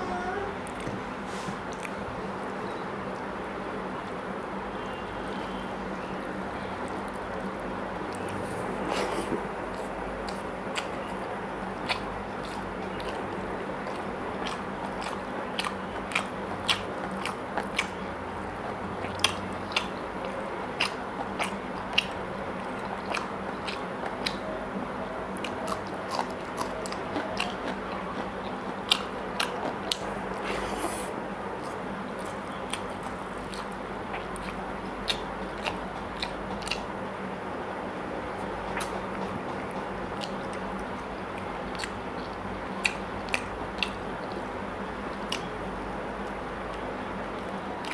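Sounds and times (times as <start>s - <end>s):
steady low hum: 0.0s - 47.9s
person chewing: 5.2s - 18.0s, 19.0s - 24.5s, 25.4s - 36.9s, 38.4s - 45.6s, 47.4s - 47.9s.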